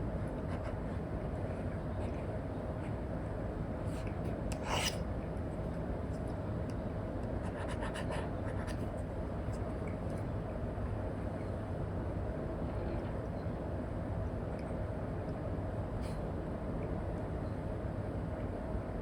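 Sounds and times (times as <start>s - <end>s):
low background noise: 0.0s - 19.0s
stylus scratching on screen: 4.6s - 5.0s.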